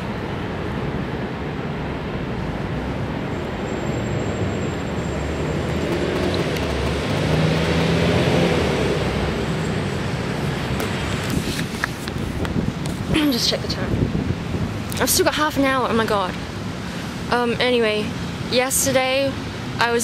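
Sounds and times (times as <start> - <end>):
vehicle engine hum: 0.0 - 15.1
passing traffic rush: 0.0 - 20.0.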